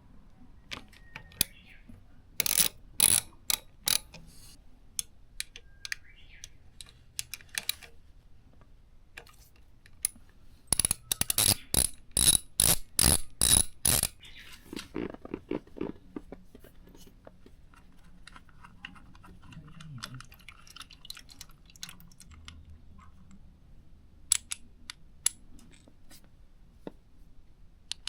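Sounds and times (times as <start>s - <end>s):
ratchet wrench clicking: 2.4s - 4.1s, 10.0s - 14.2s.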